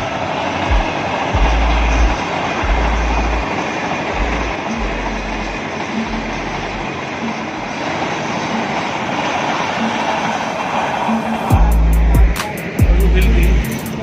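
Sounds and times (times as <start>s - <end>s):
train wagons rolling past: 0.0s - 11.5s
deep low rumbling thumps: 0.7s - 3.5s, 4.2s - 5.6s, 11.5s - 13.6s.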